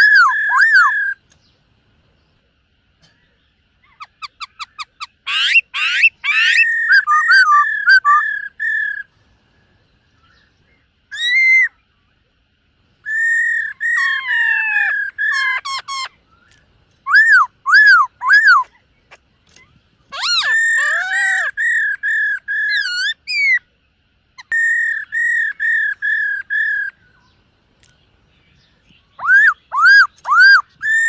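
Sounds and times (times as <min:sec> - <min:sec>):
bird singing whistled phrases: 0:00.0 - 0:01.2, 0:04.0 - 0:09.1, 0:11.1 - 0:11.8, 0:13.0 - 0:18.7, 0:19.6 - 0:23.7, 0:24.4 - 0:27.4, 0:28.9 - 0:31.0.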